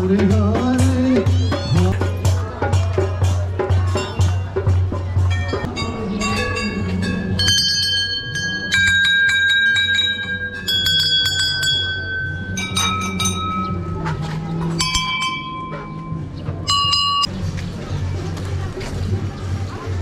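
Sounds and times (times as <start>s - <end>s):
metal bells clanging: 3.8s - 17.3s.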